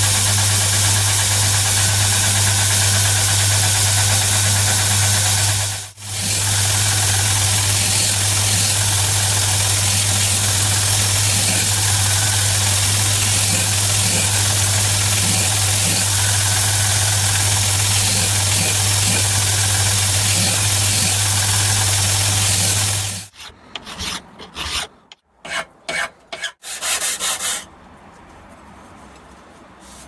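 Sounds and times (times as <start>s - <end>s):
belt grinder motor hum: 0.0s - 23.3s.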